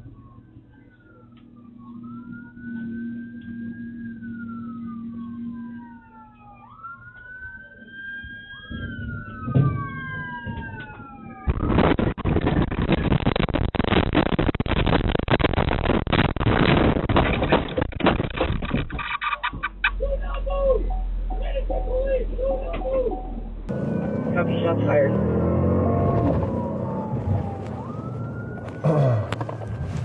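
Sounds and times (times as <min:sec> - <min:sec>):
police siren wailing: 0:00.0 - 0:12.0, 0:19.2 - 0:30.0
rough crackling rumble: 0:08.6 - 0:30.0.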